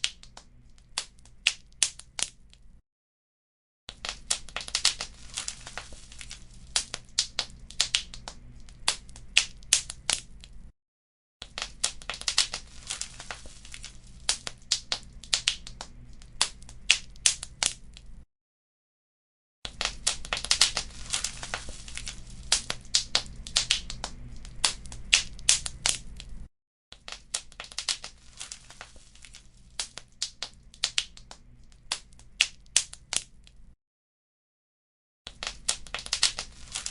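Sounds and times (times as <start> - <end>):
wood fire crackling: 4.0 - 10.7, 11.5 - 18.2, 19.7 - 26.5, 27.1 - 33.3, 35.4 - 36.9.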